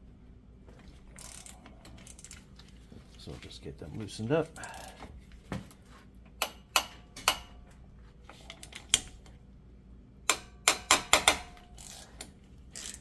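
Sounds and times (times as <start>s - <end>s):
wrench clicking metallically: 1.2s - 2.4s, 10.3s - 13.0s.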